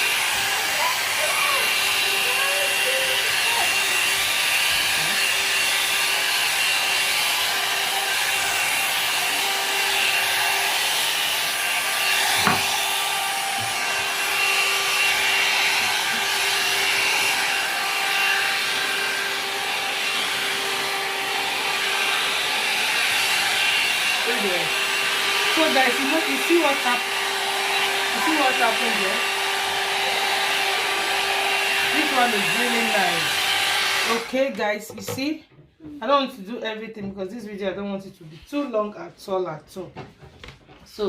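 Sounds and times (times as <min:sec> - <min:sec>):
hair dryer running: 0:00.0 - 0:35.2
hair dryer click: 0:10.9 - 0:35.2.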